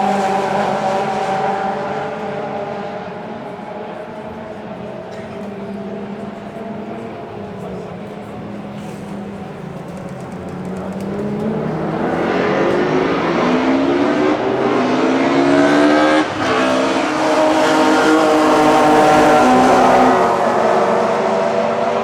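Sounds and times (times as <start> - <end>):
race car engines accelerating: 0.0 - 22.0.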